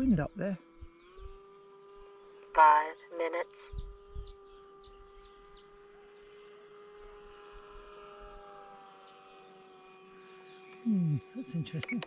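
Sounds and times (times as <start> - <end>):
faint steady hum: 0.0 - 12.0
wind thumps on microphone: 3.7 - 4.4.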